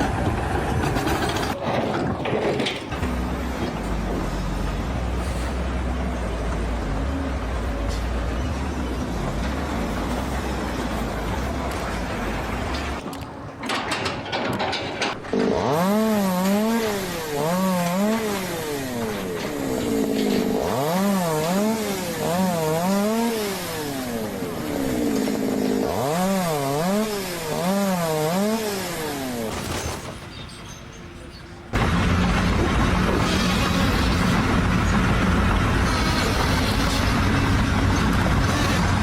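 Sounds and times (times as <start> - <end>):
small engine revving: 15.3 - 29.6.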